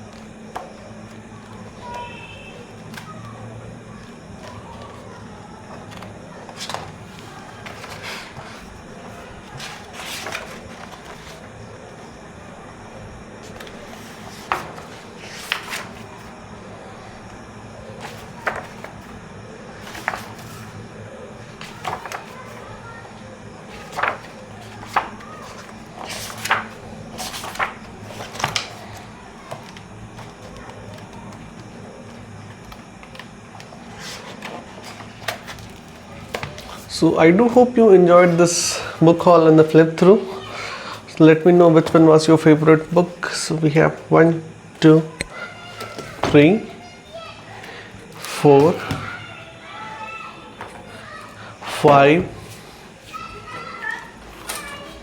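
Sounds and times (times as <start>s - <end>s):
book pages turning: 0.0s - 11.7s, 13.4s - 16.4s, 17.9s - 37.7s
steady low hum: 0.0s - 55.0s.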